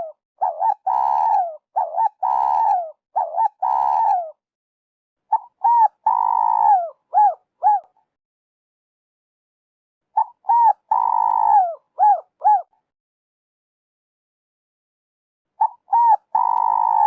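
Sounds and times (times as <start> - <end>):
dove cooing: 0.0 - 4.4, 5.3 - 8.0, 10.2 - 12.7, 15.6 - 17.0.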